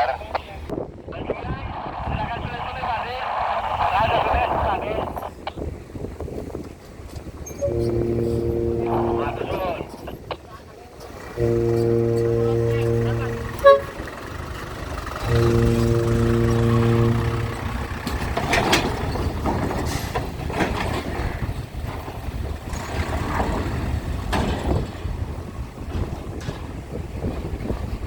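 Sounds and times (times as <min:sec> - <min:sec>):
continuous low rumble: 0:06.8 - 0:27.7
deep horn blast: 0:07.5 - 0:10.3, 0:11.4 - 0:14.3, 0:15.2 - 0:19.0.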